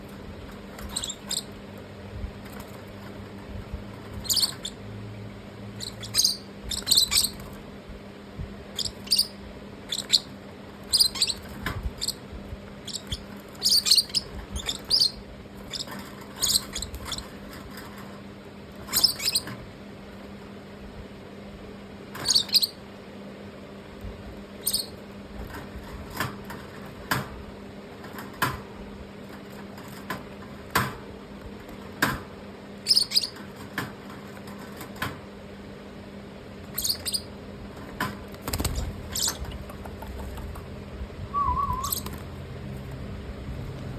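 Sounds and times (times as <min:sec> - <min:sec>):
parrots chirping: 0:00.8 - 0:01.6, 0:04.2 - 0:04.8, 0:05.7 - 0:07.6, 0:08.7 - 0:12.2, 0:12.8 - 0:17.4, 0:18.9 - 0:19.5, 0:22.2 - 0:22.8, 0:24.6 - 0:25.0, 0:32.8 - 0:33.4, 0:36.7 - 0:37.4, 0:38.6 - 0:40.7, 0:41.3 - 0:42.4.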